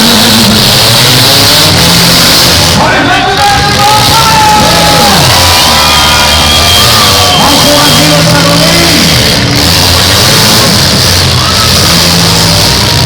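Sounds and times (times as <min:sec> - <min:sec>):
car engines revving: 0:00.0 - 0:13.0
crowd shouting: 0:02.2 - 0:13.0
distorted music over loudspeaker: 0:02.8 - 0:12.6.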